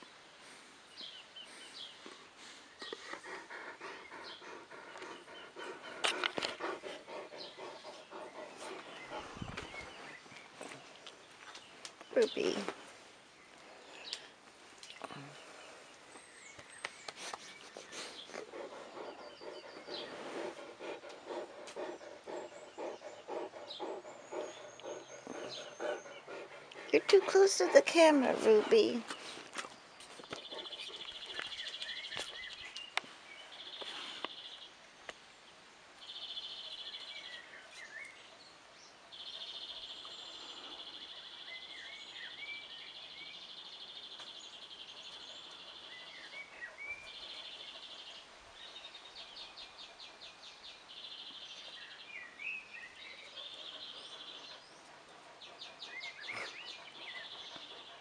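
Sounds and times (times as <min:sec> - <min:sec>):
bird chirps: 0:15.7 - 0:27.1, 0:30.2 - 0:34.6
rapid pulsing bird call: 0:18.5 - 0:28.5.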